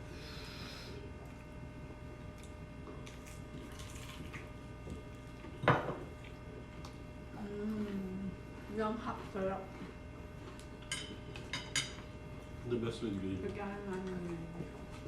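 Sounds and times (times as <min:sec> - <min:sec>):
steady low hum: 0:00.0 - 0:15.0
person eating: 0:02.2 - 0:05.4.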